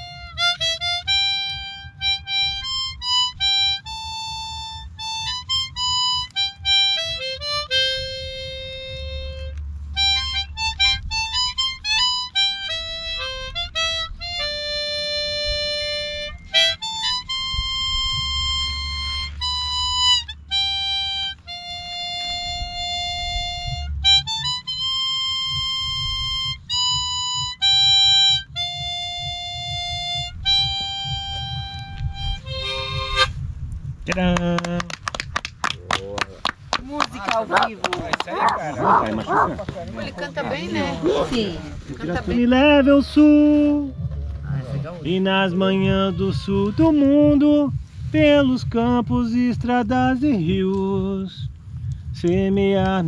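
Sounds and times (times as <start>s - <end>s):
harmonica melody: 0.0s - 33.4s, 42.2s - 47.8s.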